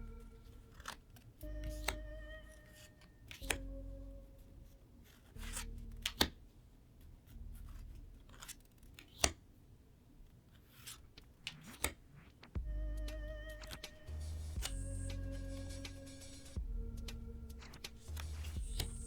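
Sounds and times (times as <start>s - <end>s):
cards sliding and rustling: 0.4s - 2.0s, 5.0s - 6.5s, 7.1s - 9.5s, 10.4s - 19.0s.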